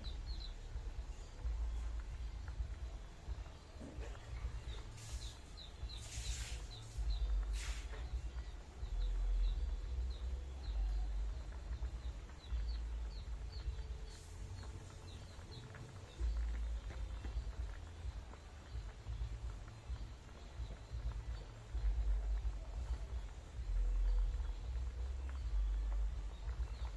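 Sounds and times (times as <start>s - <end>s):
low rumble: 0.0s - 5.0s, 8.1s - 26.9s
small bird chirping: 0.0s - 26.9s
hissing swishes: 5.0s - 8.1s.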